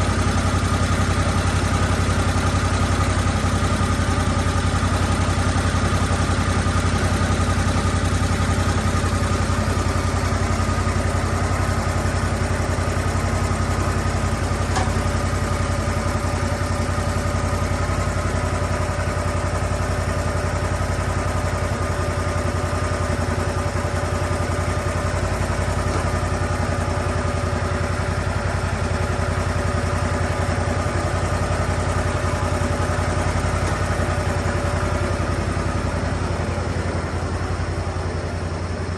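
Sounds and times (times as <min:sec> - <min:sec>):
sawmill petrol engine running: 0:00.0 - 0:38.9.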